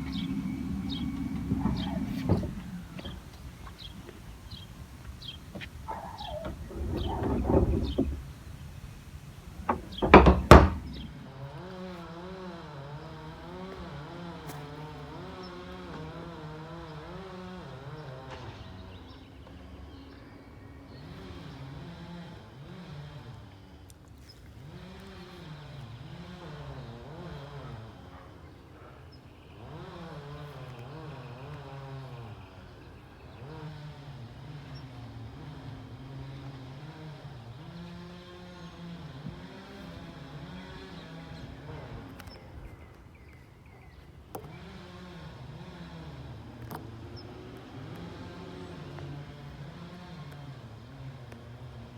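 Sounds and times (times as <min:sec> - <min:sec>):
loud thumps: 0:00.0 - 0:11.3
garbage truck engine running: 0:00.0 - 0:11.5.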